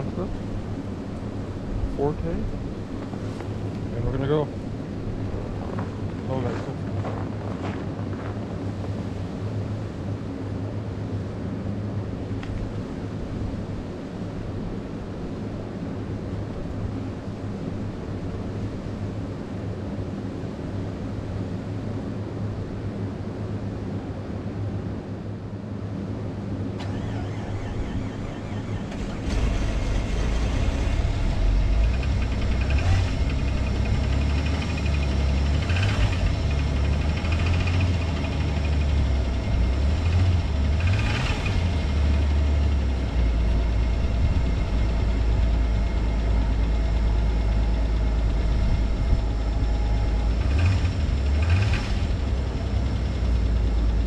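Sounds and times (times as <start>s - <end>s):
car engine cold starting: 26.8s - 54.0s
engine running roughly: 26.8s - 54.0s.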